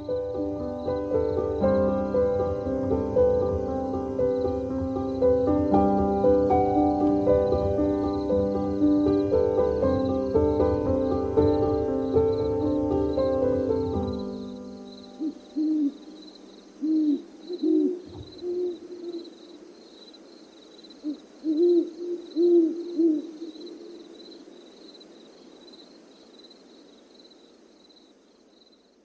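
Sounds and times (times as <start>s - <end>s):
owl hooting: 15.2s - 19.8s, 20.9s - 24.5s.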